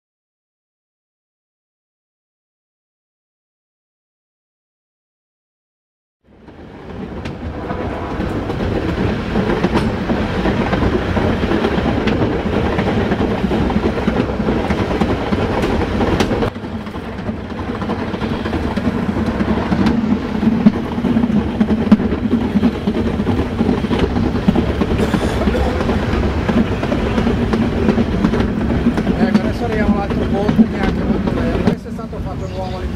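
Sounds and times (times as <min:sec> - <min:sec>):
train wheels rumbling on rails: 0:06.3 - 0:32.9
sharp rail clicks: 0:07.2 - 0:31.8.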